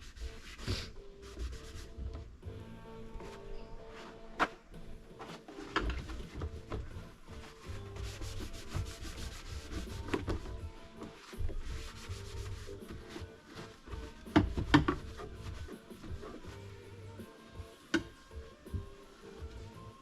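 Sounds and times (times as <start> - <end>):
scrubbing plastic: 0.0 - 2.4, 5.2 - 17.2
quiet background music: 0.0 - 20.0.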